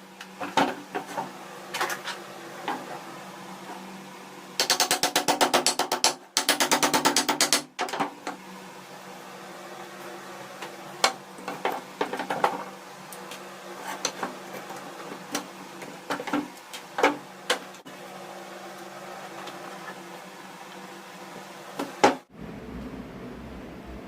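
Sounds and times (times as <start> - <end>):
steady low hum: 8.3 - 24.0.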